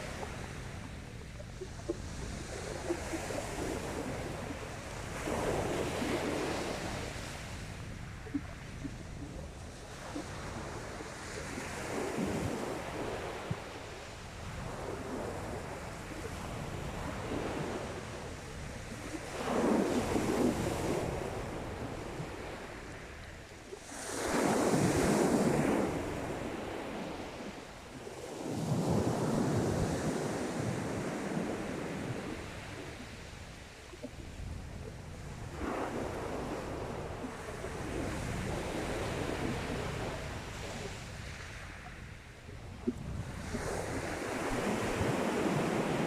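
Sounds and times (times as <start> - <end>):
sea waves breaking on beach: 0.0 - 46.0.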